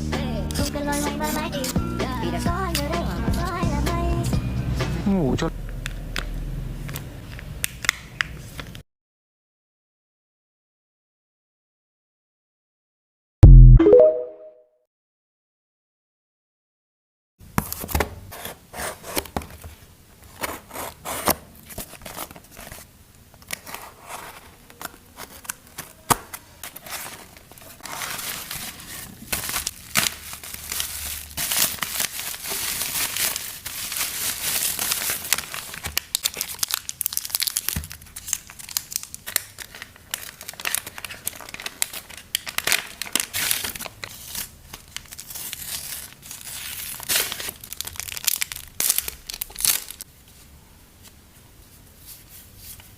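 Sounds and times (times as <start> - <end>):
packaging crinkling and tearing: 20.3 - 50.1.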